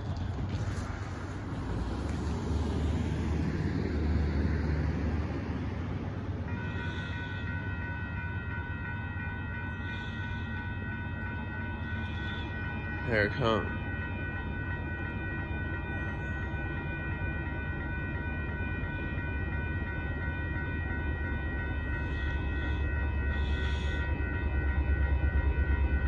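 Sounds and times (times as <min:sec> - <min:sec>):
freight train rumble: 0:00.0 - 0:26.0
crossing warning bell ringing: 0:01.5 - 0:26.0.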